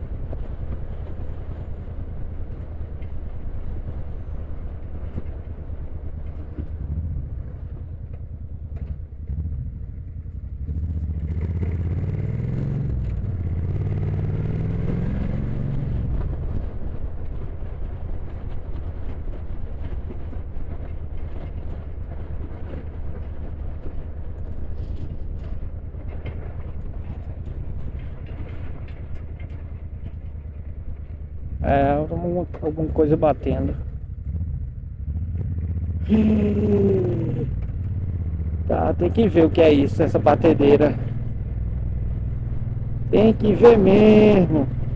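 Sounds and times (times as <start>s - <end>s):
motorcycle engine running: 0.0s - 44.9s
engine knocking: 16.3s - 44.9s.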